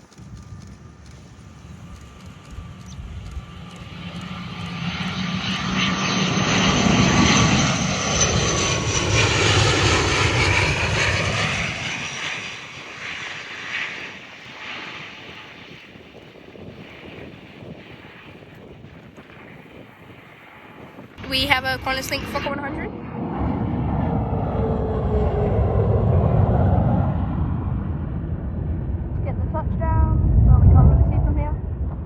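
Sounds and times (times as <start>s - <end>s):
jet airliner passing overhead: 0.0s - 32.0s.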